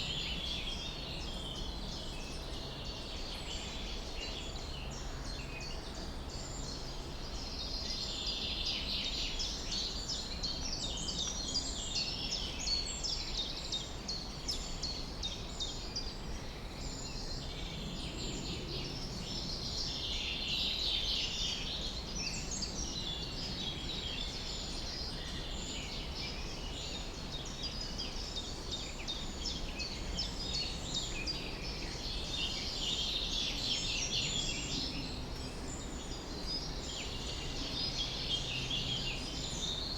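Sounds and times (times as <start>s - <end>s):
small birds chirping and singing: 16.8s - 39.9s.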